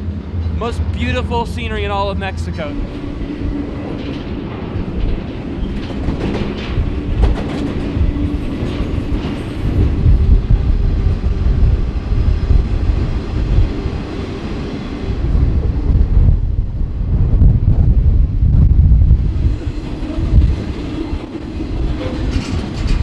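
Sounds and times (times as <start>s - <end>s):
train wheels rumbling: 0.0s - 23.0s.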